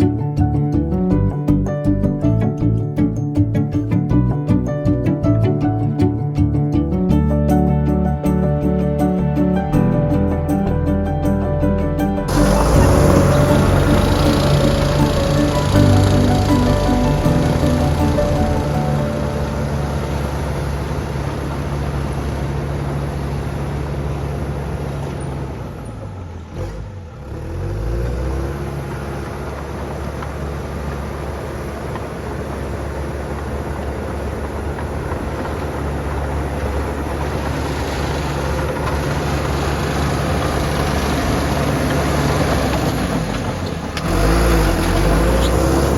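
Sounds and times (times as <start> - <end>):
bulldozer diesel engine running: 12.3 - 45.9.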